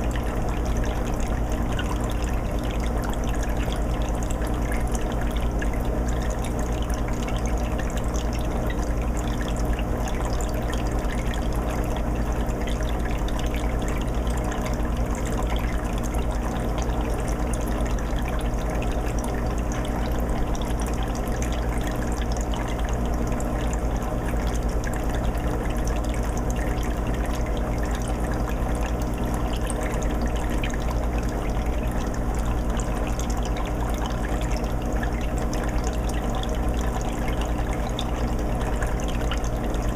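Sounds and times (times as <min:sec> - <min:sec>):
low filter hum: 0:00.0 - 0:39.9
water trickling and bubbling: 0:00.0 - 0:39.9.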